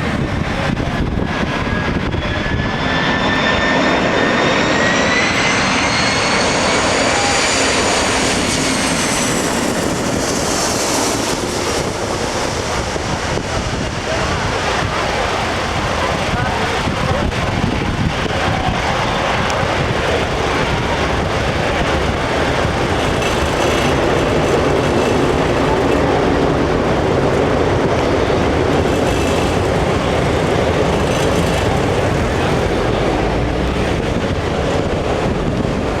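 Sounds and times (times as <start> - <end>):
jet engines rumbling: 0.0 - 36.0.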